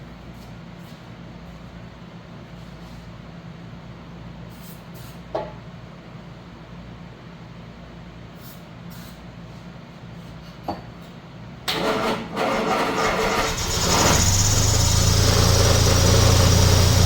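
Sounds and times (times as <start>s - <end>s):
engine cranking and starting: 11.7s - 17.0s.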